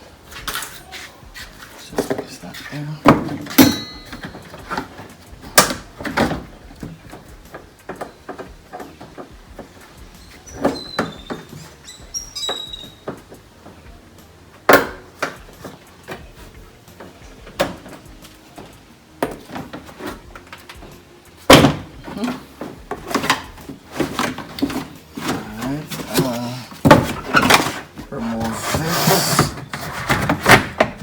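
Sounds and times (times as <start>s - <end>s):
plastic parts clicking and knocking: 3.0s - 10.0s, 16.9s - 28.6s.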